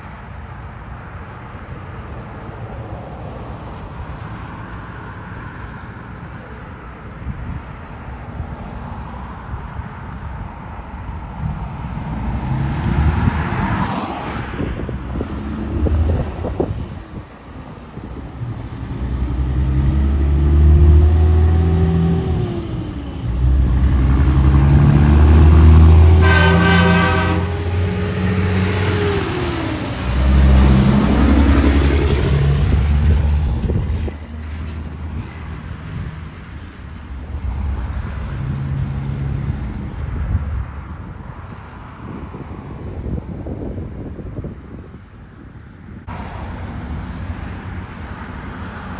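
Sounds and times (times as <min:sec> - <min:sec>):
diesel trucks passing: 0:00.0 - 0:48.9
truck air horn blast: 0:24.8 - 0:29.1.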